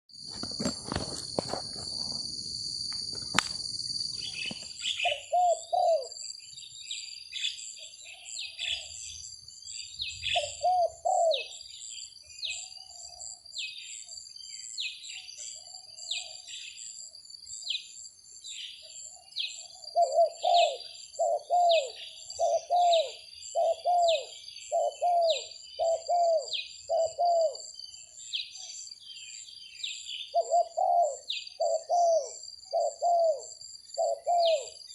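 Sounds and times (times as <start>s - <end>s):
high insect drone: 0.1s - 34.9s
high bird chirp: 4.1s - 9.2s
doves cooing: 4.2s - 6.2s, 10.2s - 11.6s, 19.6s - 27.7s, 30.3s - 34.9s.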